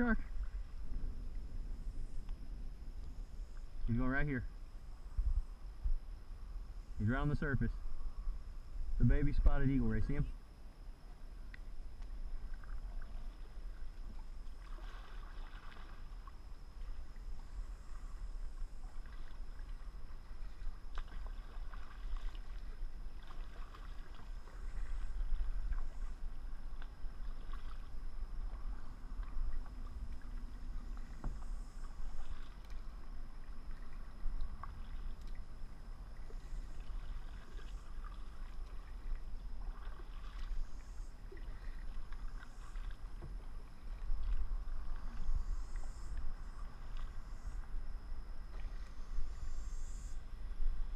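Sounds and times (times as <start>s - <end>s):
steady low rumble: 0.0s - 50.9s
paddle splashing in water: 11.1s - 45.5s, 46.1s - 49.3s.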